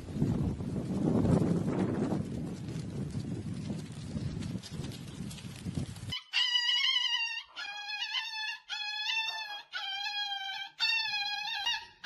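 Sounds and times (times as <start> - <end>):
dog wailing high-pitched cries: 6.1 - 12.0.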